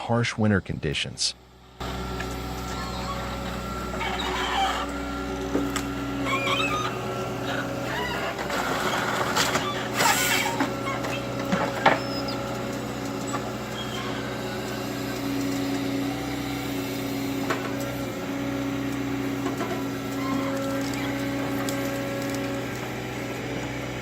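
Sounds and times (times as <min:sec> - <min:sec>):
excavator diesel engine running: 0:01.4 - 0:24.0
wood breaking cracks: 0:08.1 - 0:14.0.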